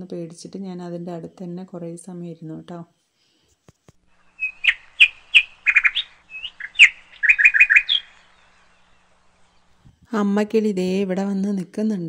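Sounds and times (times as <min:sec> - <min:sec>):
small birds chirping: 0:04.1 - 0:10.0.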